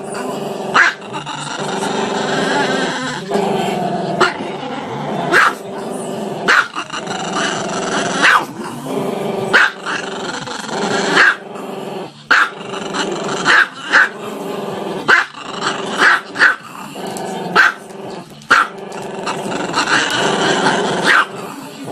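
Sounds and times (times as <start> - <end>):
small dog barking: 0.8 - 1.0, 5.3 - 5.6, 6.5 - 6.8, 8.2 - 8.5, 9.5 - 9.8, 11.2 - 11.4, 13.5 - 14.2, 16.0 - 16.6, 21.0 - 21.3.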